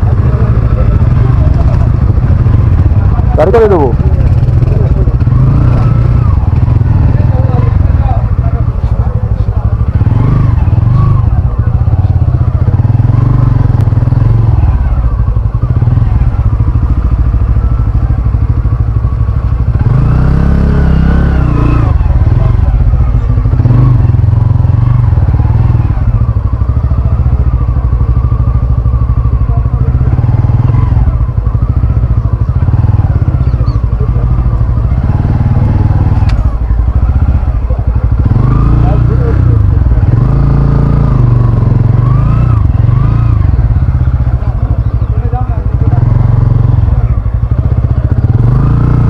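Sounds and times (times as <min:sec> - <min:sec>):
motorcycle engine rumbling: 0:00.0 - 0:49.0.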